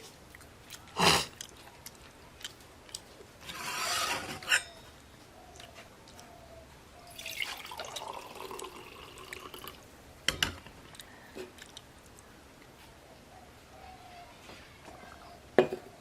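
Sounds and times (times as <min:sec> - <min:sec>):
liquid pouring: 0:07.1 - 0:09.8.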